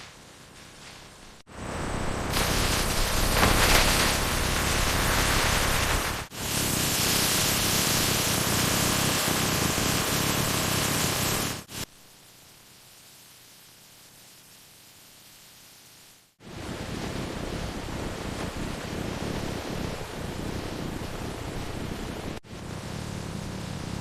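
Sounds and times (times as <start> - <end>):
loud factory hiss: 0.5 - 11.9.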